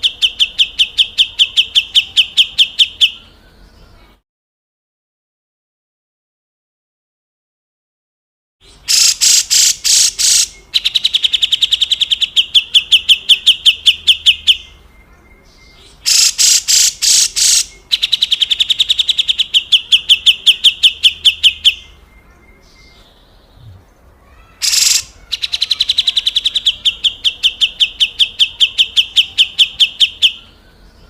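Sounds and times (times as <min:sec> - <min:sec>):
bulbul harsh rasping call: 0:08.7 - 0:14.6, 0:15.8 - 0:21.9, 0:23.7 - 0:30.4.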